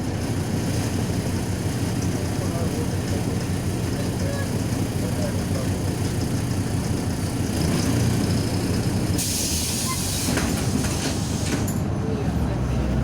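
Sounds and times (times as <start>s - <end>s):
bus cabin low rumble: 0.0s - 13.0s
pneumatic air hiss: 9.2s - 11.7s.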